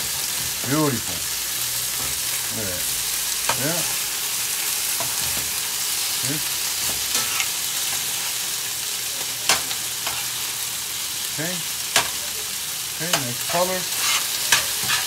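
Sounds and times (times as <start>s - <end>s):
chicken sizzling in hot oil: 0.0s - 15.0s
metal spoon clicking on pan: 11.9s - 12.2s.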